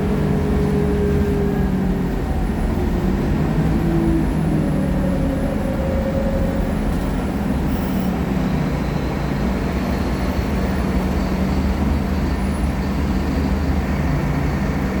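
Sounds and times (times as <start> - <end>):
bus diesel engine running: 0.0 - 15.0.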